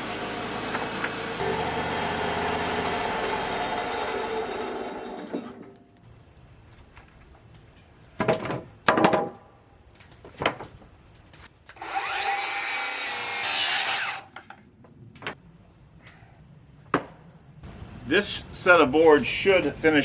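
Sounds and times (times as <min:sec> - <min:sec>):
saw cutting wood: 0:00.0 - 0:05.6, 0:11.8 - 0:14.3
wooden boards clattering: 0:08.2 - 0:09.4.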